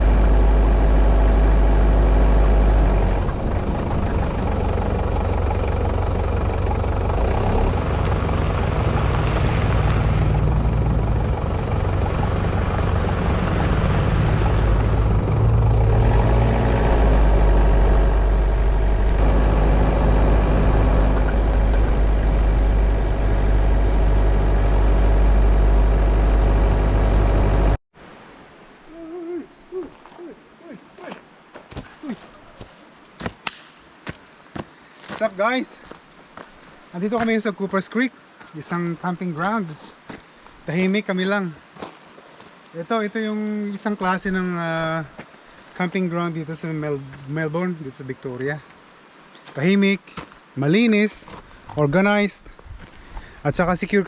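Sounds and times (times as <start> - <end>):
vehicle rumbling: 0.0 - 27.8
road noise: 0.0 - 28.8, 30.2 - 54.0.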